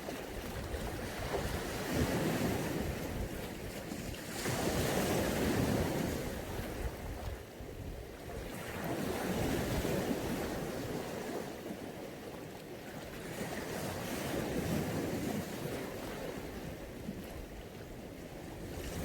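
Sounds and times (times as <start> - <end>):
sea waves washing onto shore: 0.0 - 7.6
wind buffeting microphone: 0.0 - 11.6, 13.2 - 19.0.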